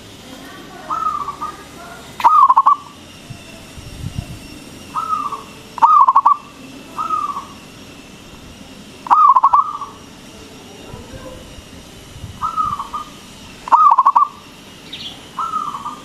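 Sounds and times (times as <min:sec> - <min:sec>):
dove rolling coos: 0:00.8 - 0:03.1, 0:04.5 - 0:16.0.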